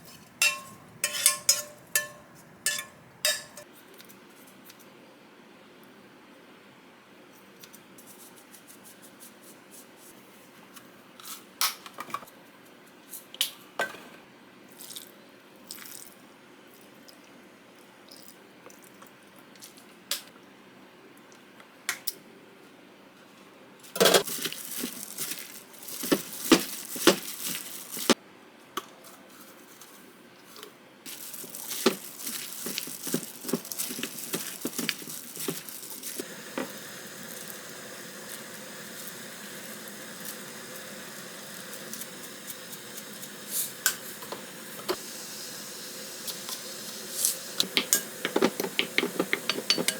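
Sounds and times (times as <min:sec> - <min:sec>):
utensils and dishes clicking: 0:00.0 - 0:03.6, 0:47.6 - 0:49.9
food sizzling in a pan: 0:31.1 - 0:49.9.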